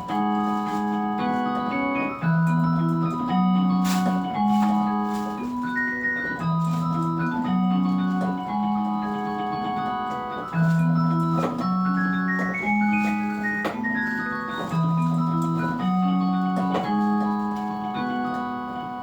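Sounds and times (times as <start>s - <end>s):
keyboard bass line: 0.0s - 19.0s
keyboard melody: 0.0s - 19.0s.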